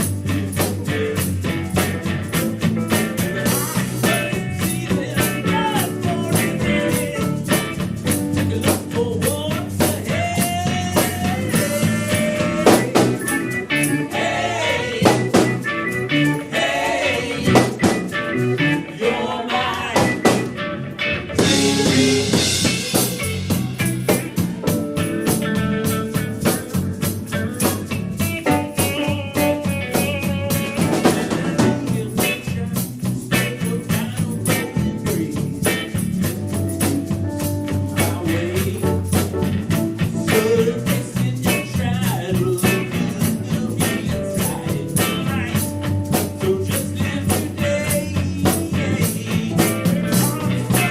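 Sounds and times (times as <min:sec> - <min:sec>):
drum kit: 0:00.0 - 0:50.9
electric guitar: 0:00.0 - 0:50.9
person singing: 0:03.2 - 0:07.8, 0:08.4 - 0:20.5, 0:27.6 - 0:36.1, 0:37.9 - 0:39.6, 0:40.2 - 0:50.9.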